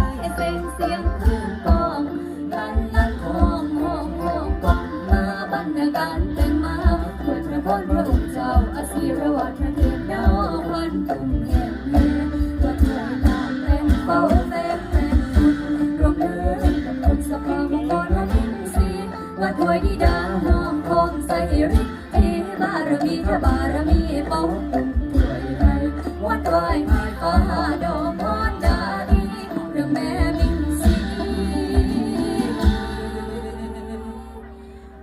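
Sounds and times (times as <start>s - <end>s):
folk ensemble melody: 0.0s - 35.0s
steady low drum beat: 23.2s - 29.6s.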